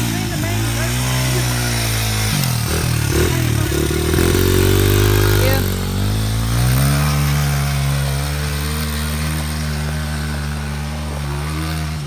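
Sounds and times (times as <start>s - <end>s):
pit bike engine running: 0.0s - 12.0s.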